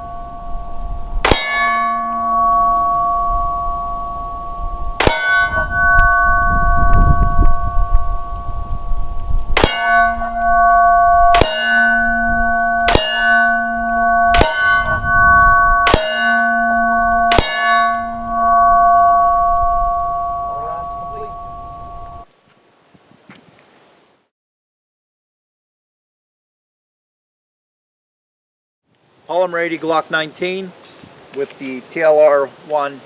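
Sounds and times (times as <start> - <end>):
metal target ringing: 0.0 - 22.2.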